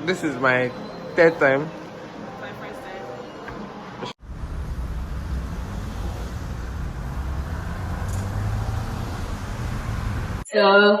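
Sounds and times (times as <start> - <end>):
vehicle and road rumble: 4.2 - 10.4.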